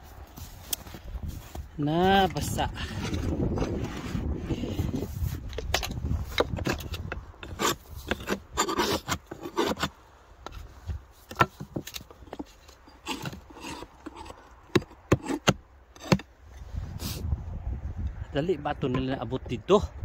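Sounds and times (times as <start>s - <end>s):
scraping on wooden beehive: 2.3s - 16.3s.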